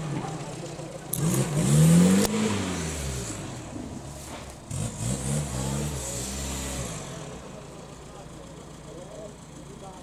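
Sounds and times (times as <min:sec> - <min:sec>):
vehicle engine revving: 0:00.0 - 0:07.8.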